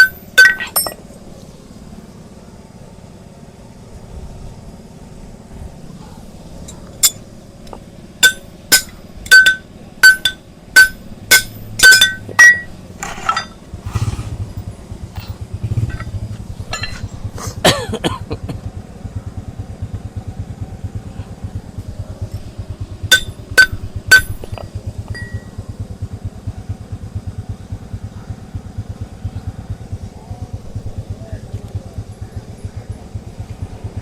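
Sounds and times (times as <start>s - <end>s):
ringing metal clinks: 0.0s - 1.0s, 8.2s - 13.6s, 15.2s - 17.2s, 23.0s - 25.7s
low fast-pulsing engine: 0.0s - 34.0s.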